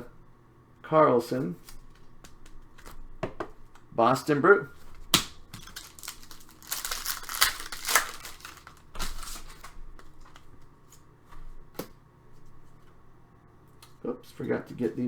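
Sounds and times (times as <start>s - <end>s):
clicks of cards being handled: 1.6s - 3.0s
card pack wrappers crinkling and tearing: 5.1s - 10.5s.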